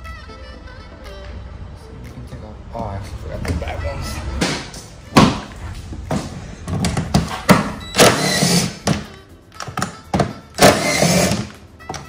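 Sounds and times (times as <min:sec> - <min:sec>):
power ratchet whining: 0:08.0 - 0:09.2, 0:10.6 - 0:11.6.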